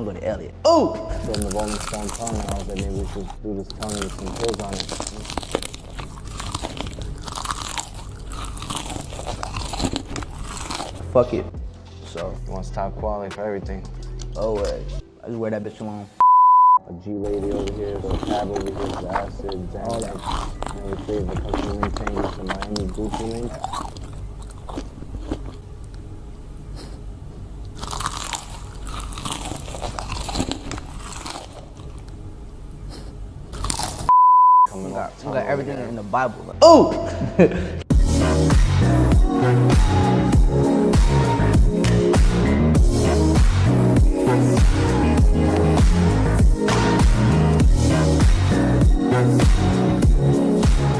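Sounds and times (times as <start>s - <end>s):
person chewing crunchy food: 1.1s - 11.1s, 17.2s - 26.1s, 26.7s - 34.1s.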